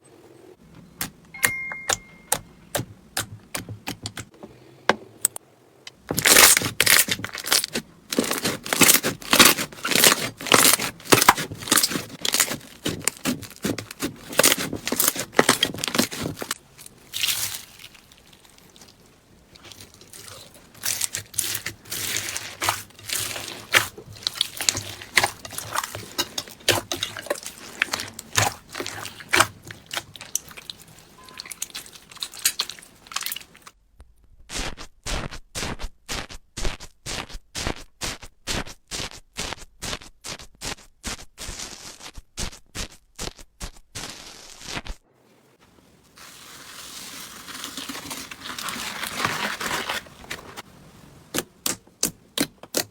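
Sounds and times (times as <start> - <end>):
slime crackling and clicking: 31.4 - 33.6.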